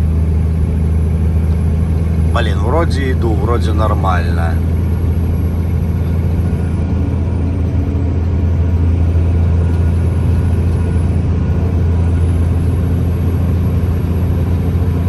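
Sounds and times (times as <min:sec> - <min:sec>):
diesel truck engine under load: 0:00.0 - 0:15.0.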